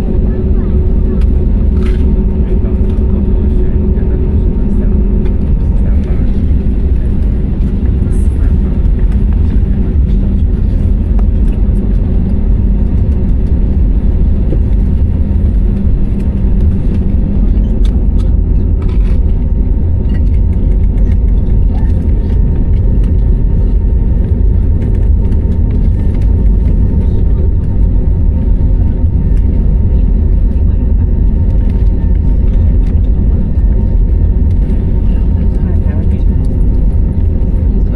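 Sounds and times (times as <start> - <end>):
jet engine and airflow rumble: 0.0 - 37.9.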